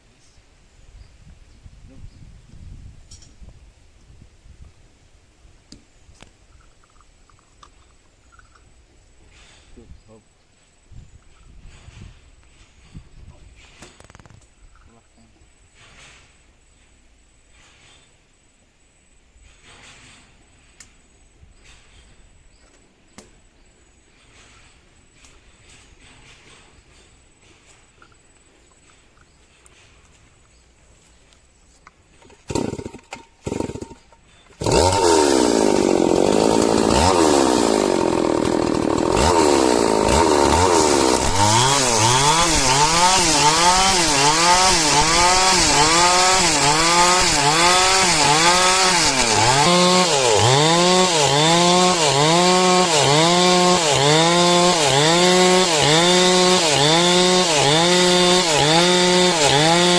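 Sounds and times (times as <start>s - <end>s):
chainsaw sawing wood: 32.1s - 59.9s.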